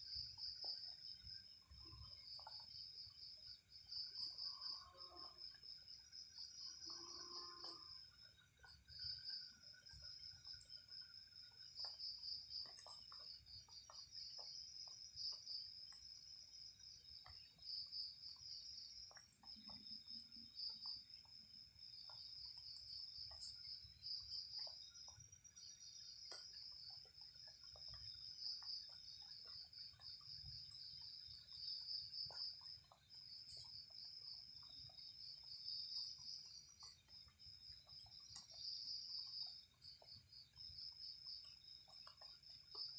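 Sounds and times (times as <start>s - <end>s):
night insects chirping: 0.0s - 42.9s.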